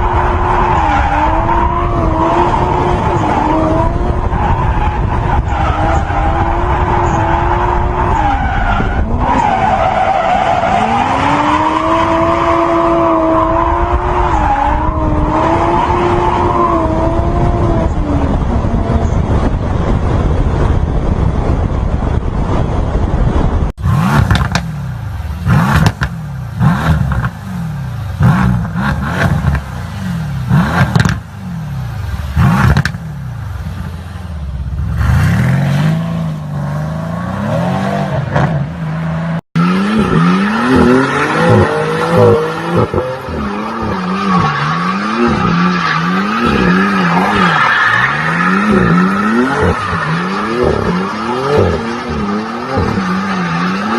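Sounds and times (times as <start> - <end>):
car exhausts revving: 23.8 - 53.9.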